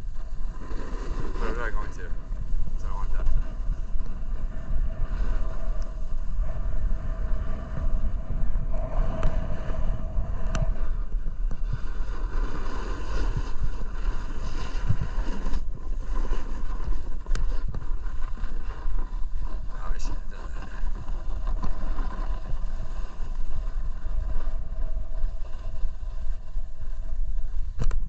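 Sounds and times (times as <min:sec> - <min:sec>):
snowboard scraping on icy snow: 0:00.0 - 0:08.1, 0:08.9 - 0:27.8
wind rumbling on microphone: 0:00.0 - 0:28.0.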